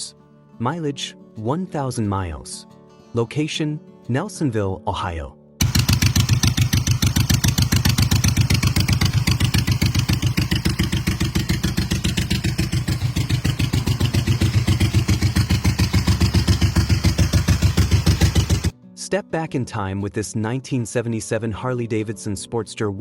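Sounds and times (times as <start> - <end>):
motorcycle engine idling: 5.6 - 18.7.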